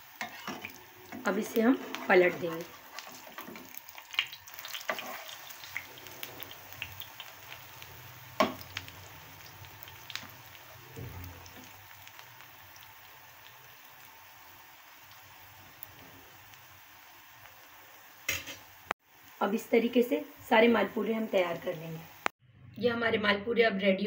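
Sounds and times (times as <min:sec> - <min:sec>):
batter sizzling in a pan: 0:00.0 - 0:22.4
spatula knocking a pan: 0:08.4 - 0:08.6.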